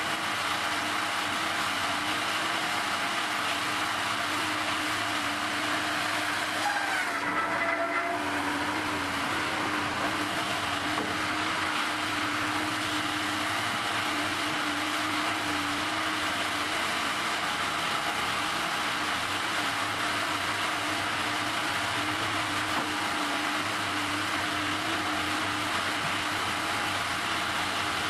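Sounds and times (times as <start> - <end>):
log loader machine drone: 0.0 - 28.0.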